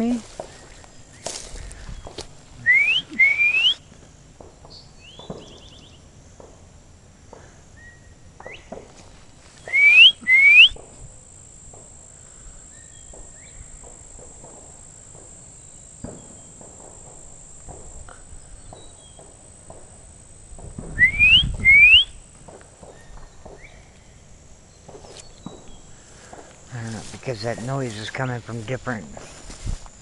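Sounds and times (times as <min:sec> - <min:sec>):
rising two-part whistles: 0:02.6 - 0:03.8, 0:09.6 - 0:10.8, 0:20.8 - 0:22.2
bird trill: 0:04.7 - 0:06.0, 0:21.0 - 0:22.2.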